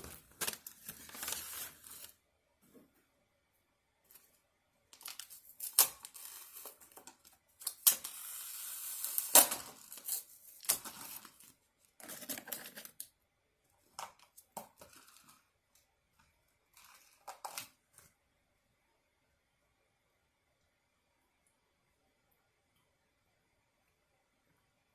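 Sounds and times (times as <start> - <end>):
food packaging tearing and crinkling: 0.0 - 2.2, 5.0 - 13.0.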